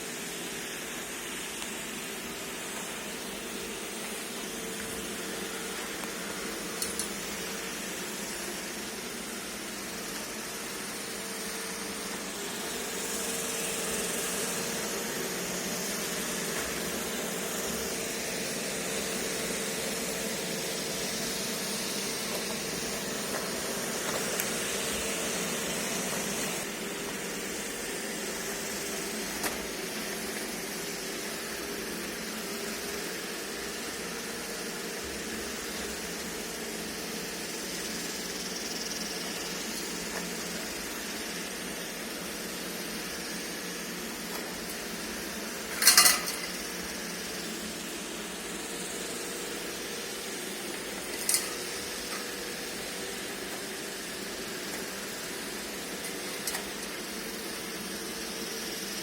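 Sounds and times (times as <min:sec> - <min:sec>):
robot vacuum motor hum: 0:00.0 - 0:59.0.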